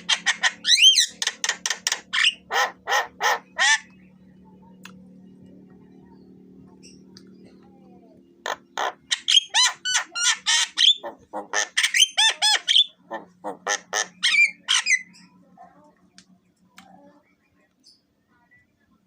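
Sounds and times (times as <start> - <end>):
bird harsh squawks and whistles: 0.1 - 3.9, 8.5 - 15.3.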